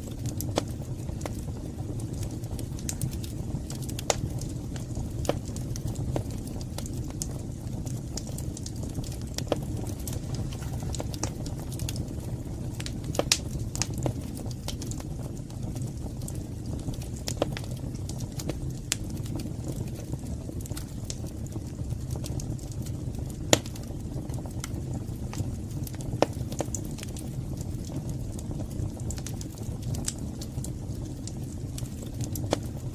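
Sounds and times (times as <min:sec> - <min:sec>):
fire pops and snaps: 0:00.0 - 0:32.9
wood fire crackling: 0:00.0 - 0:32.9.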